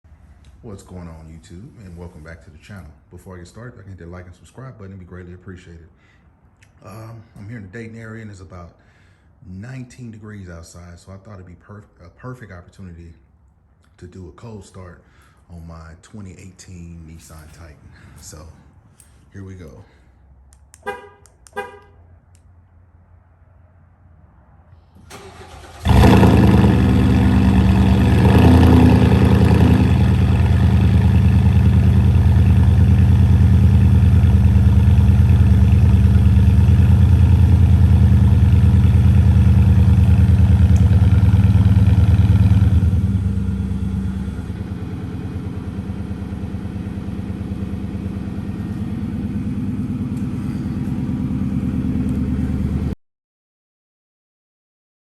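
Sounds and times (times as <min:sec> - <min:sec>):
engine cranking: 0:25.0 - 0:43.2
truck engine idling: 0:25.1 - 0:53.0.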